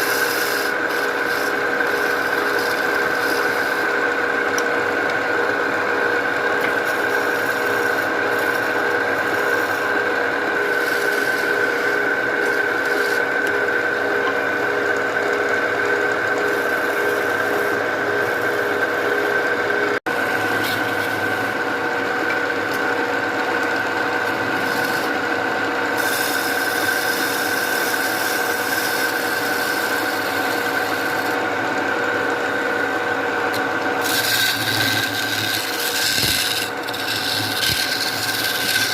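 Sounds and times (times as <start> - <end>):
power tool sanding wood: 0.0 - 21.9, 24.2 - 25.3, 25.9 - 31.5, 33.5 - 38.9.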